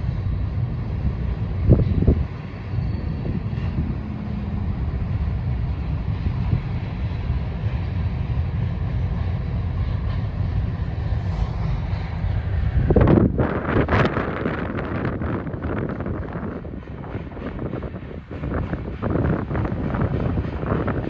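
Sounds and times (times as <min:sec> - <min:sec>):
train rolling past: 0:00.0 - 0:21.0
wind buffeting microphone: 0:00.0 - 0:21.0.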